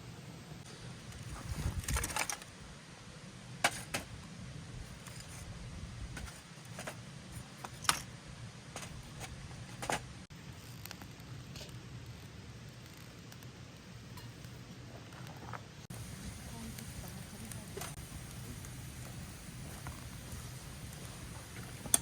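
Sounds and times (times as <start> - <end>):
low steady hum: 11.2 - 22.0.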